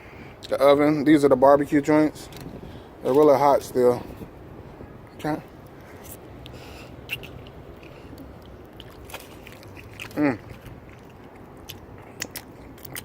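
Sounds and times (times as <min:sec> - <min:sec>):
wet mouth clicks: 0:06.4 - 0:13.0
person chewing chicken wing: 0:07.1 - 0:13.0.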